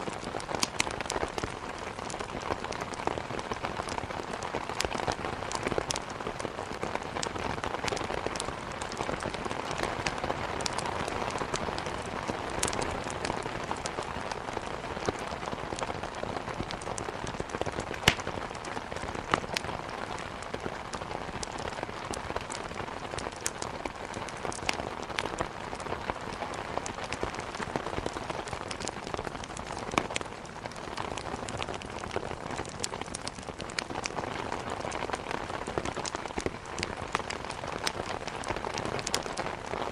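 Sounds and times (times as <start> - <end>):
steady rain: 0.0 - 39.9
wood crackling in fireplace: 0.0 - 39.9.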